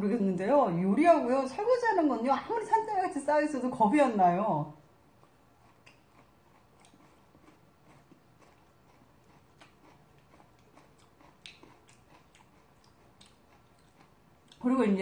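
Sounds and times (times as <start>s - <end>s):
faint chewing: 4.8s - 15.0s.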